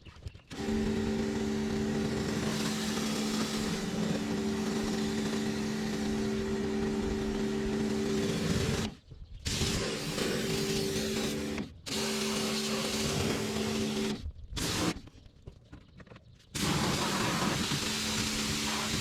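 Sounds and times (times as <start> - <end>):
pressure washer motor humming: 0.5 - 15.0, 16.6 - 19.0
water spray hissing: 16.6 - 19.0.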